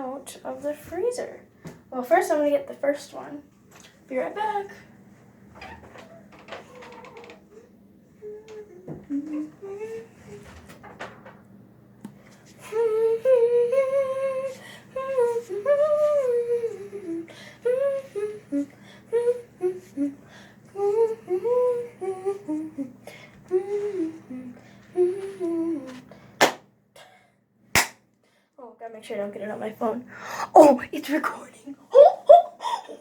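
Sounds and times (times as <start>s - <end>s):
girl humming a tune: 8.2s - 10.6s, 12.6s - 26.1s.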